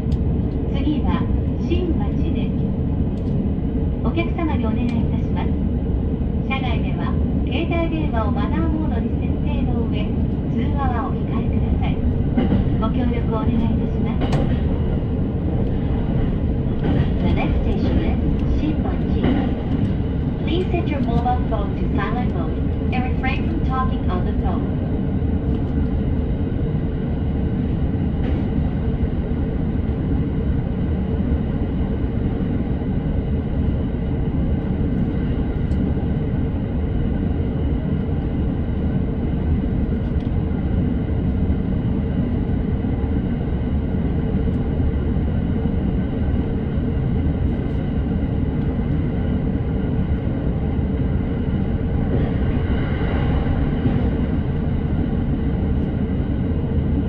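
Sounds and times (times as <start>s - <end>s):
constant train whine: 0.0s - 57.0s
train low rumble: 0.0s - 57.0s
higher-pitched train noise: 50.6s - 56.4s.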